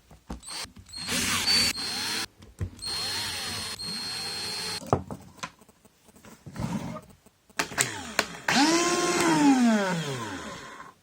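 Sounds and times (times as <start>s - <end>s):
cordless drill motor whining: 0.4s - 4.8s, 7.8s - 10.9s.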